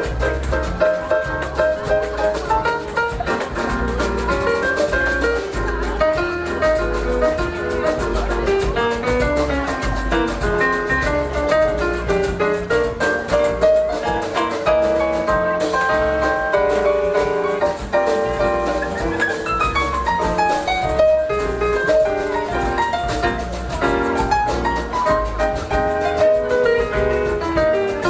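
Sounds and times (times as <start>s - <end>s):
jazz combo playing: 0.0s - 28.0s.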